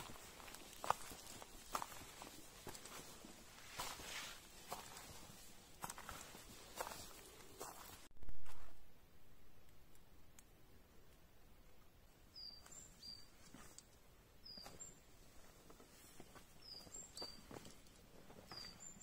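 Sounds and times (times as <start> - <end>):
faint footsteps: 0.0 - 8.8, 12.6 - 19.0
small bird chirping: 12.3 - 13.8, 14.4 - 15.1, 16.5 - 17.8, 18.4 - 19.0.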